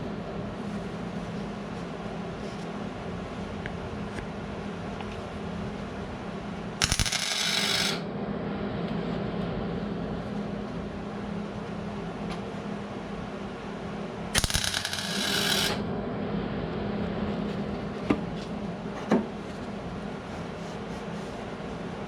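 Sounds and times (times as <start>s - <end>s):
steady low hum: 0.0s - 22.0s
welder crackling: 6.8s - 8.0s, 14.4s - 15.8s.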